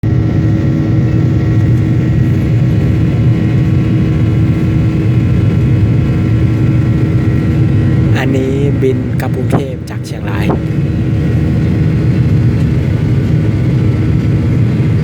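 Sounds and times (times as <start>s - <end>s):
airliner cabin engine rumble: 0.0s - 15.0s
even hums: 2.2s - 12.6s.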